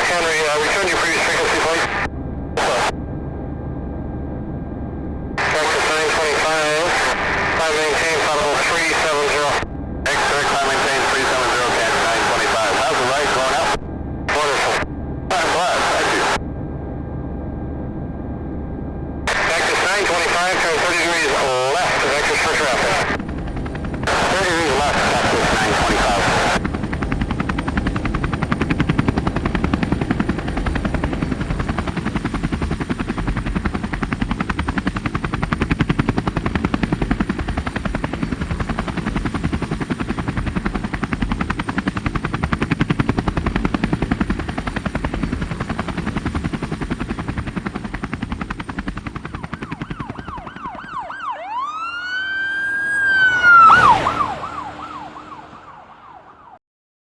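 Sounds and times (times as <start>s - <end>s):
siren wail: 21.2s - 33.7s, 49.2s - 56.6s.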